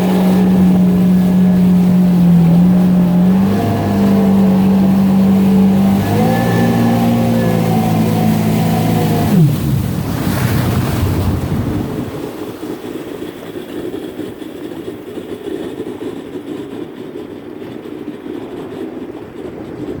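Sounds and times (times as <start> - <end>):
wind noise: 0.0 - 15.0
jet ski engine running: 0.0 - 20.0
water noise: 0.0 - 20.0.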